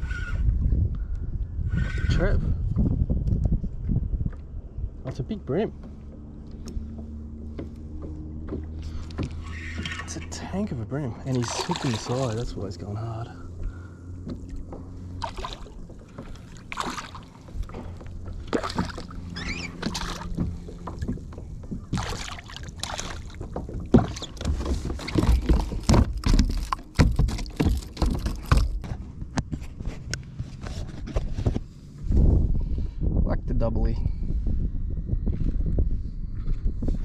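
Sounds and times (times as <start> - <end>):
wind buffeting microphone: 0.0 - 37.0
water splashing against kayak: 11.3 - 12.6, 13.6 - 30.0.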